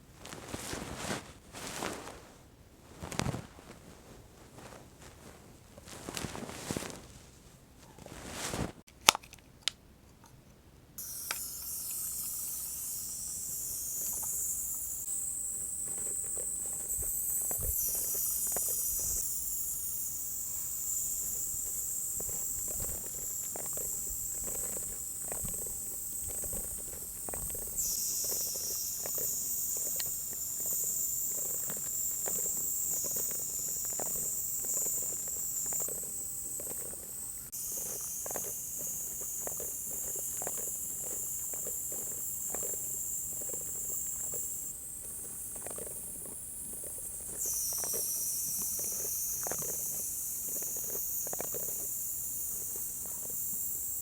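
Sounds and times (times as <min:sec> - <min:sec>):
mist spray hissing: 0:11.0 - 0:45.8, 0:46.5 - 0:54.0.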